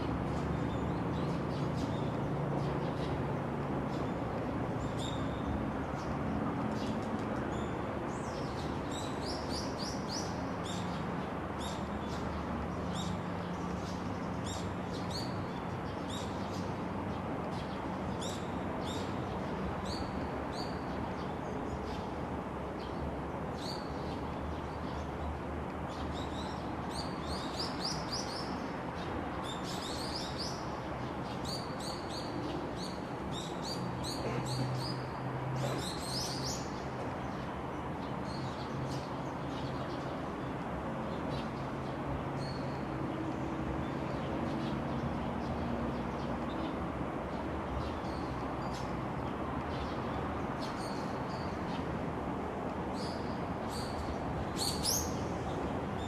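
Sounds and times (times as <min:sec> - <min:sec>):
small birds chirping: 0:53.0 - 0:55.6.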